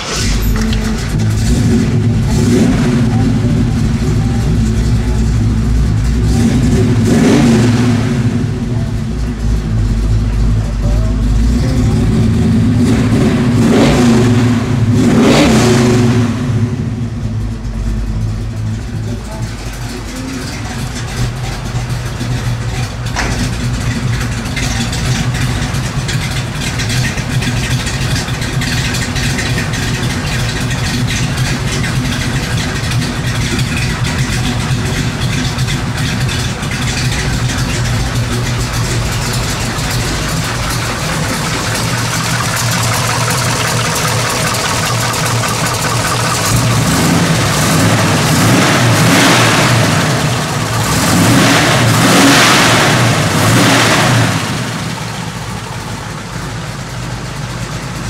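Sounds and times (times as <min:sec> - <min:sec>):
engine idling and revving: 0:00.0 - 0:58.0.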